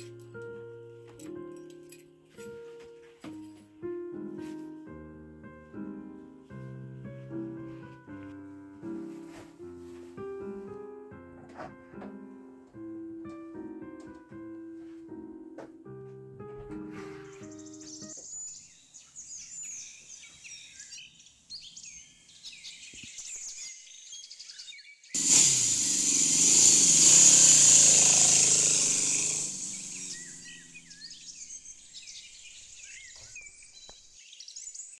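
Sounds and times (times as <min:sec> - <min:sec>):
birds chirping and singing: 0:17.3 - 0:35.0.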